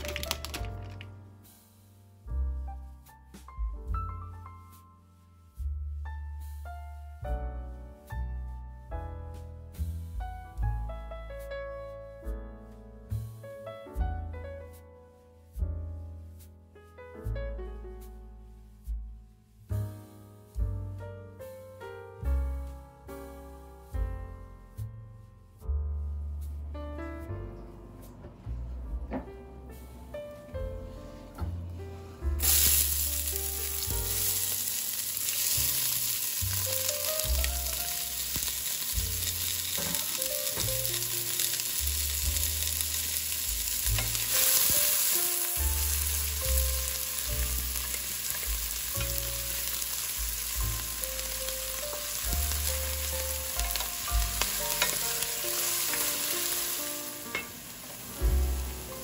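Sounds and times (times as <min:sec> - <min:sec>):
vegetables sizzling in hot oil: 0:32.4 - 0:59.0.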